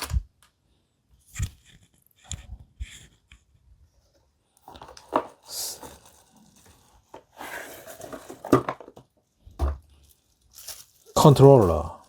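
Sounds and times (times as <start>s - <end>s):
plastic packaging rustling: 4.6s - 12.0s.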